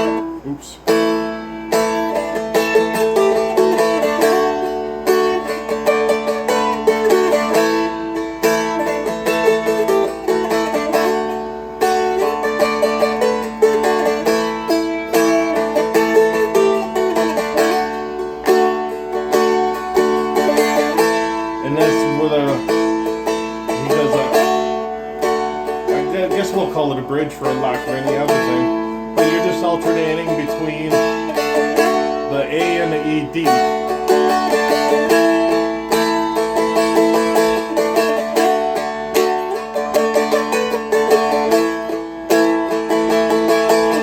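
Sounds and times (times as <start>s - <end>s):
strumstick strummed: 0.0s - 44.0s.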